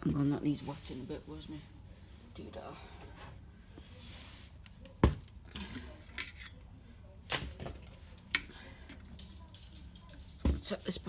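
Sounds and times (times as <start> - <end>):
items being moved and set down: 7.2 - 11.0
light clicks and rattles: 7.4 - 11.0.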